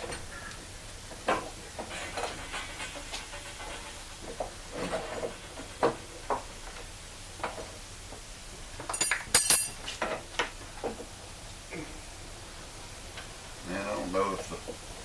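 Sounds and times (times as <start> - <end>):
hand tools clinking on metal: 8.8 - 10.2.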